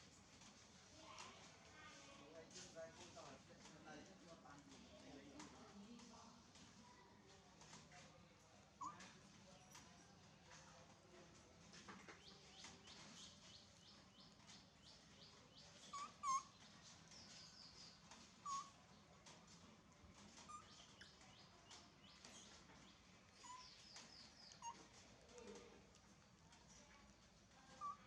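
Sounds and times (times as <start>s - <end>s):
baby monkey crying: 15.8s - 16.6s, 18.4s - 18.8s, 27.8s - 28.0s.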